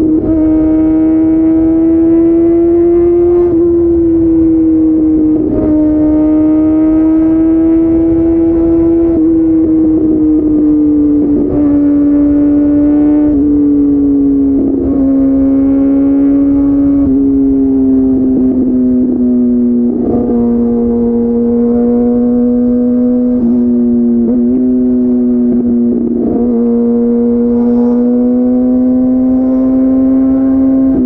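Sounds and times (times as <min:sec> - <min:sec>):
motorcycle engine high-pitched: 0:00.0 - 0:31.0.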